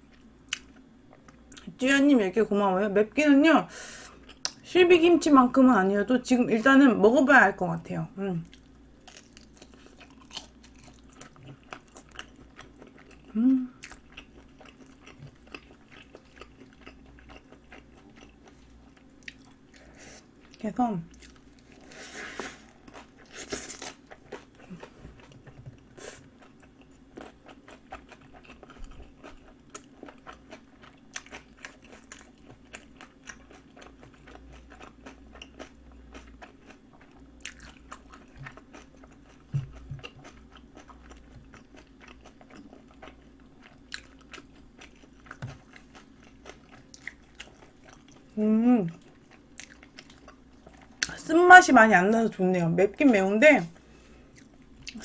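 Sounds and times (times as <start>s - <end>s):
faint steady hum: 0.0s - 55.0s
person chewing crunchy food: 8.5s - 51.2s, 53.8s - 55.0s.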